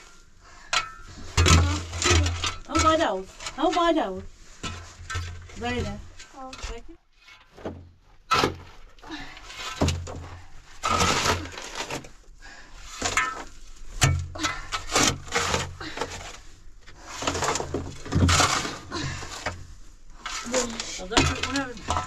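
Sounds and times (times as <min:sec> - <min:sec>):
knocks thuds and crunching: 0:07.5 - 0:09.0.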